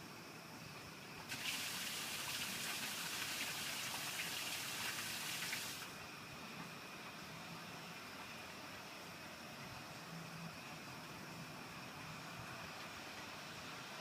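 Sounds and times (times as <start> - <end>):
rain falling hard: 1.3 - 5.9.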